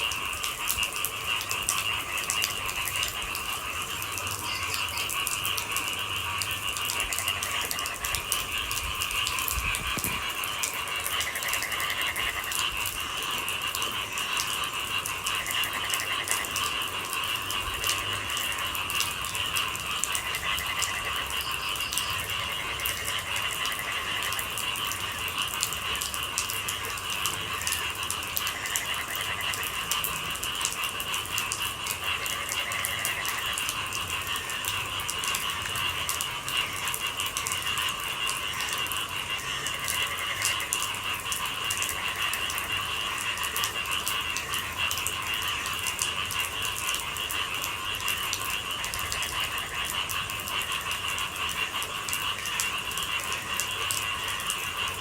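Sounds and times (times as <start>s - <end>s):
rain falling: 0.0s - 55.0s
night animals calling: 3.1s - 12.5s, 20.6s - 23.0s.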